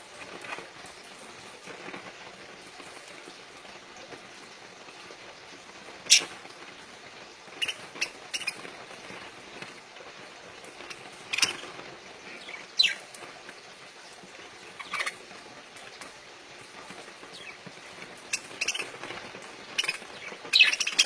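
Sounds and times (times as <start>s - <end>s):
parakeets chirping: 6.1s - 6.3s, 7.6s - 9.6s, 10.6s - 13.2s, 14.6s - 15.4s, 16.9s - 21.0s.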